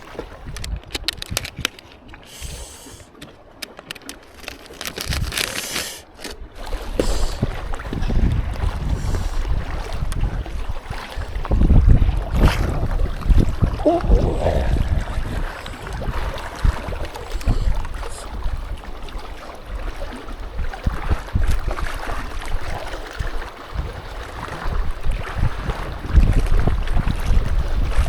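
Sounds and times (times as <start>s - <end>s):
gusty wind buffeting microphone: 6.8s - 19.1s, 20.4s - 22.7s, 23.3s - 28.0s.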